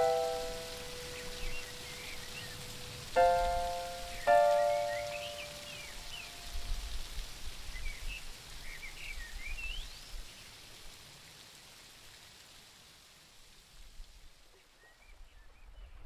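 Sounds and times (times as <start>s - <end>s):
background music: 0.0s - 2.2s, 3.2s - 6.2s
birds chirping: 0.0s - 6.6s
soft steady hiss: 0.0s - 16.0s.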